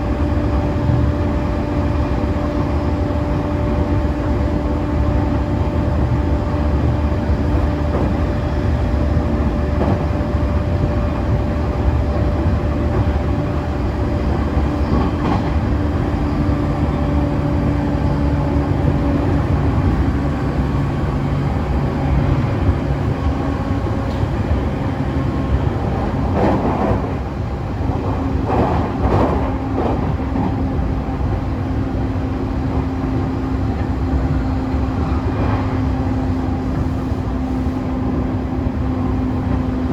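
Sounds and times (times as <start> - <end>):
electric train running noise: 0.0 - 39.9.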